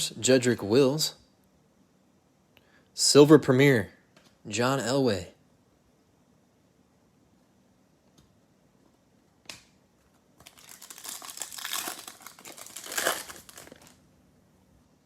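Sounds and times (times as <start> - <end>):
plastic wrapper crinkling: 10.4 - 14.0
wrapper tearing: 10.4 - 14.0.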